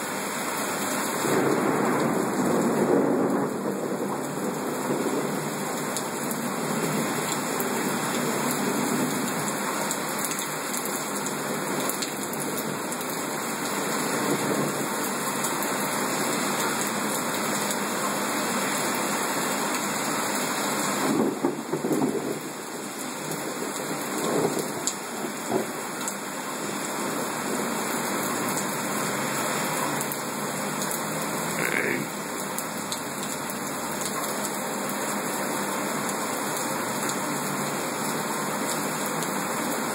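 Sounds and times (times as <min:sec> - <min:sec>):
heavy rain pouring: 0:00.0 - 0:39.9
rain splashing: 0:00.0 - 0:39.9.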